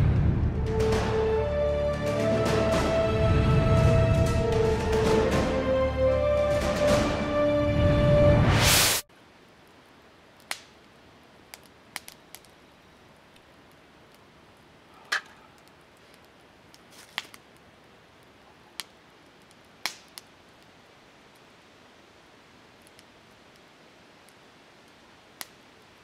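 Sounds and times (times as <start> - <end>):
campfire crackling and popping: 0.0 - 7.2, 8.6 - 26.0
music: 0.0 - 8.8.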